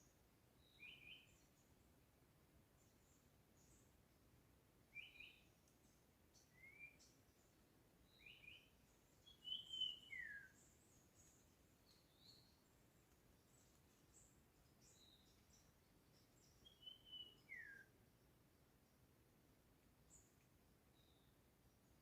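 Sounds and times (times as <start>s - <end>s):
faint high bird chirps: 0.0s - 1.8s, 4.9s - 18.2s, 20.0s - 22.0s
birds whistling song phrases: 0.6s - 1.4s, 4.9s - 5.5s, 6.4s - 7.2s, 8.1s - 12.6s, 14.8s - 17.9s.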